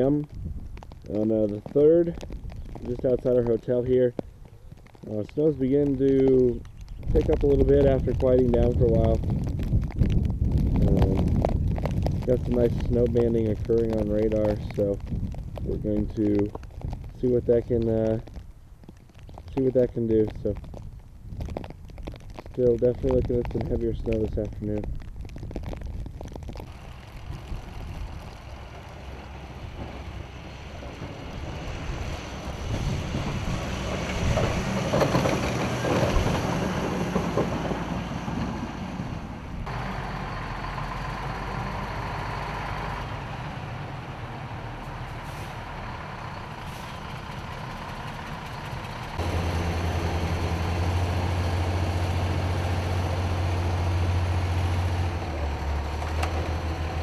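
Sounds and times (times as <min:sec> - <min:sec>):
heavy truck engine droning: 0:26.5 - 0:57.0
snowplow truck passing: 0:26.6 - 0:57.0.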